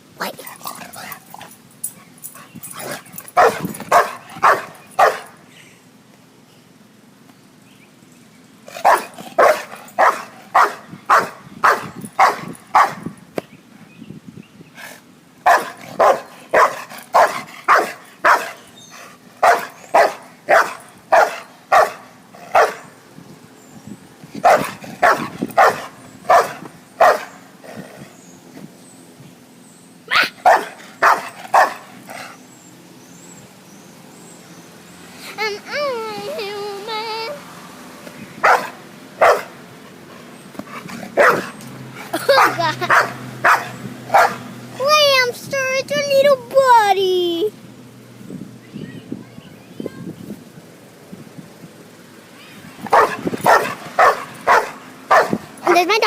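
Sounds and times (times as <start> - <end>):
dog barking: 3.4 - 5.4, 8.8 - 13.0, 15.4 - 18.6, 19.4 - 22.9, 24.4 - 27.4, 30.4 - 31.8, 38.4 - 39.5, 41.2 - 41.5, 42.3 - 44.4, 52.9 - 55.8.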